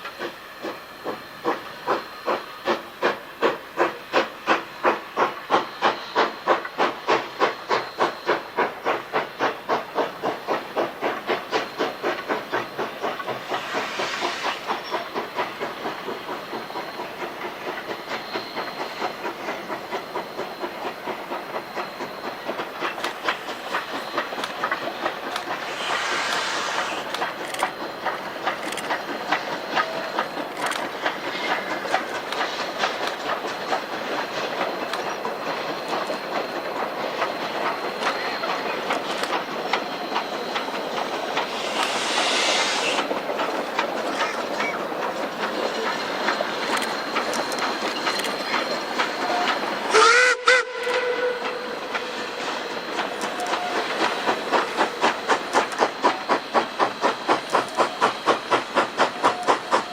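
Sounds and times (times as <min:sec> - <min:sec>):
steam hiss: 0:00.0 - 0:59.9
steam locomotive exhaust chuffing: 0:00.0 - 0:59.9
steam whistle blast: 0:41.6 - 0:43.0, 0:49.2 - 0:52.2.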